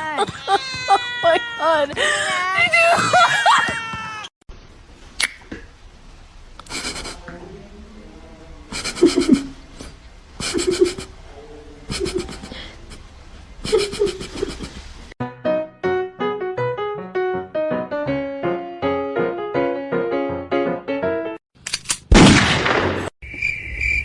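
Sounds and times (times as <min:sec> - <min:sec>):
person laughing: 0:00.0 - 0:04.3, 0:06.7 - 0:07.2, 0:08.7 - 0:11.1, 0:11.9 - 0:14.9.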